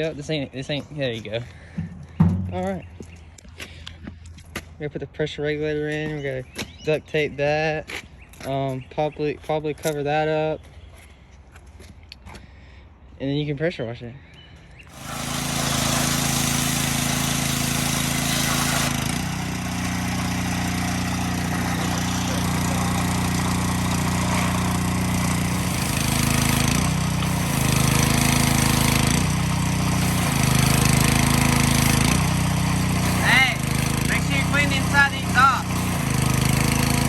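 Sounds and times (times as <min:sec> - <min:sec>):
pressure washer motor hum: 0:14.9 - 0:37.0
water spray hiss: 0:15.0 - 0:19.4.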